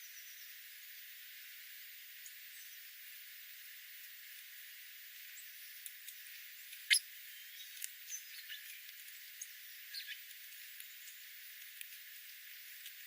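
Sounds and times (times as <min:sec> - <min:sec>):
steady hiss: 0:00.0 - 0:13.0
small birds chirping: 0:04.2 - 0:13.0.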